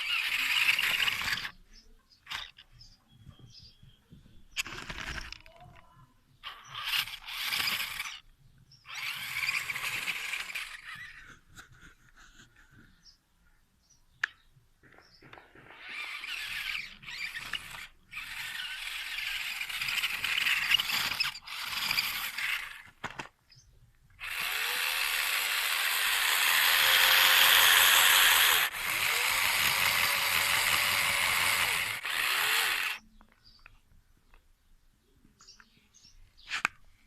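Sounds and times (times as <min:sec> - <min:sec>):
toy truck motor whirring: 0:00.0 - 0:02.9, 0:04.5 - 0:12.8, 0:15.5 - 0:23.4, 0:24.2 - 0:33.0.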